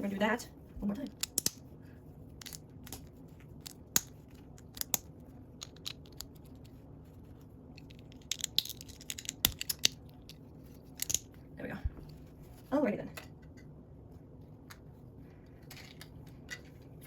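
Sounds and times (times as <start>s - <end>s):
plastic bricks clicking together: 3.6s - 6.4s, 7.8s - 10.4s, 11.0s - 11.3s.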